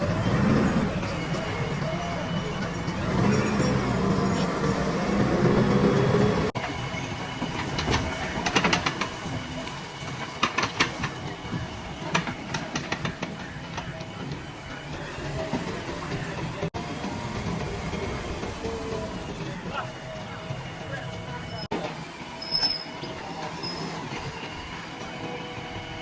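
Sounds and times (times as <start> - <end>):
diesel engine running: 0.0 - 7.4.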